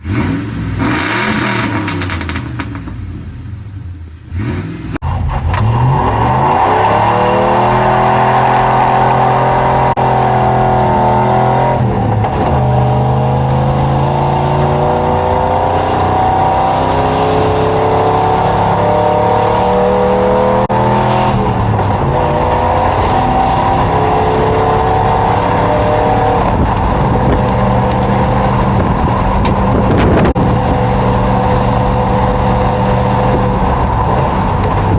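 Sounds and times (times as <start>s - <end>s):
car engine exhaust revving: 0.0s - 34.9s.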